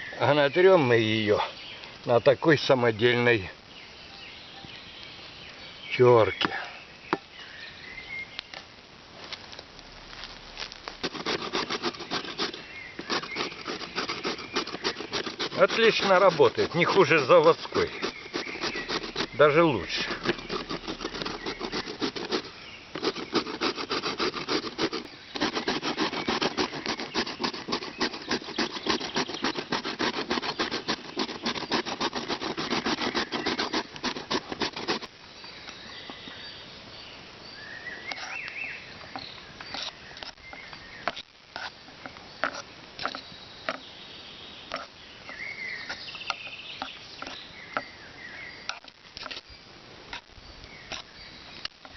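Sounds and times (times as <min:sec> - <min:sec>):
faint chirps: 0:00.0 - 0:08.6
carrot rasping on hand grater: 0:11.0 - 0:35.1.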